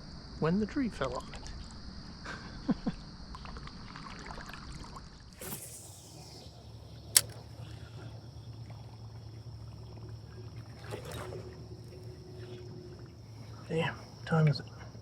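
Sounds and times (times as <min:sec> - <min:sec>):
fishing rod swish: 0:05.4 - 0:06.4
reel bail click: 0:07.1 - 0:07.5.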